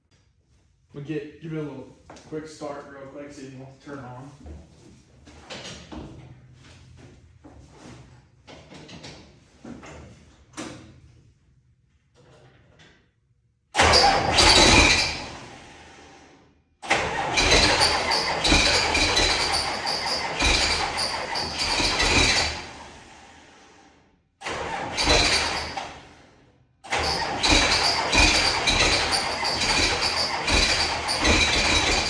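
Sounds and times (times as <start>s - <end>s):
tractor engine cranking: 13.8s - 15.6s, 16.8s - 23.0s, 24.4s - 26.1s, 26.9s - 32.0s.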